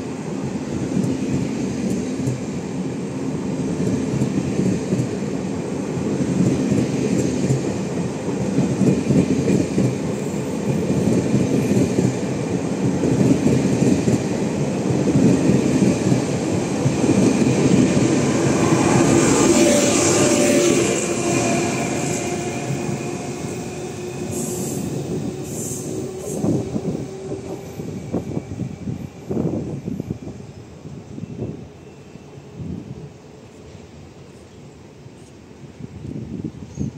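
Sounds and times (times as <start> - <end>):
train whine over rumble: 0.0 - 36.9
train wheels clattering on rails: 0.8 - 2.6, 3.6 - 28.8.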